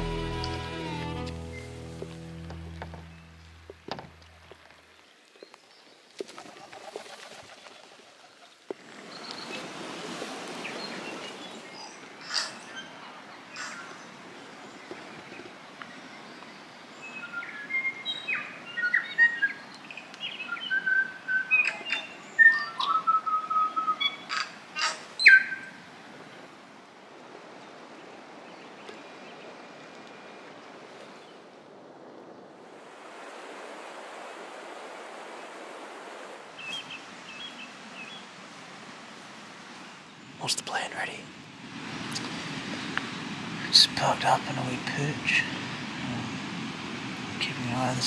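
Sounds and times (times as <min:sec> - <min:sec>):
bird singing: 0:01.4 - 0:06.0, 0:16.0 - 0:24.6, 0:25.2 - 0:25.8, 0:36.6 - 0:38.2.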